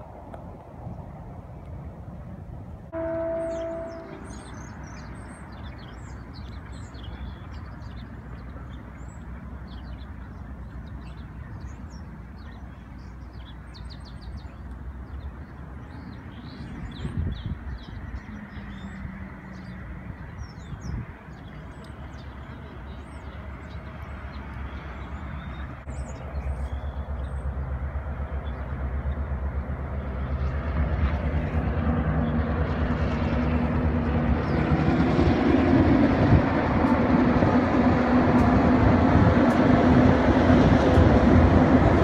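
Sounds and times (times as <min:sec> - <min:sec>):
low outdoor rumble: 0:00.0 - 0:42.0
loud steady tone: 0:02.9 - 0:04.6
small birds chirping: 0:03.2 - 0:29.3.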